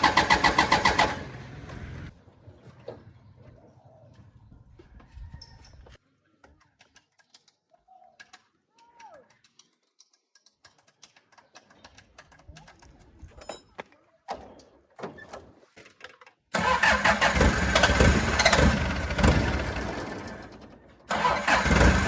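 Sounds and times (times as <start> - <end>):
vehicle engine starting and running: 0.0 - 2.2, 16.6 - 22.0.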